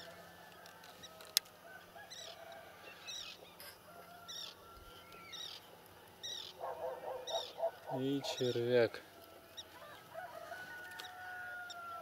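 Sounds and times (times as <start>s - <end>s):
rapid lower bird calls: 4.3s - 8.7s.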